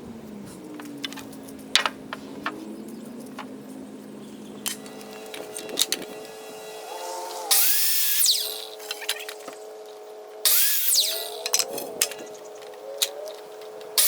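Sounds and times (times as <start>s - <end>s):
power saw cutting wood: 4.6s - 9.8s, 10.5s - 12.0s
power saw running: 4.7s - 9.6s, 10.5s - 11.8s.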